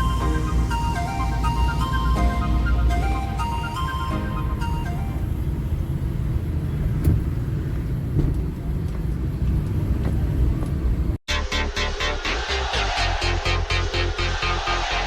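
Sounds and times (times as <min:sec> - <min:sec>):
electronic music with beat: 0:00.0 - 0:05.2, 0:11.3 - 0:15.0
vehicle rumble on road: 0:00.0 - 0:11.2.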